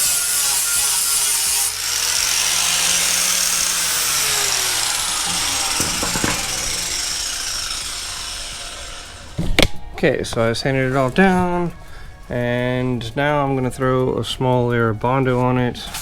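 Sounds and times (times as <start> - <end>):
power sander rasping: 0.0 - 9.8.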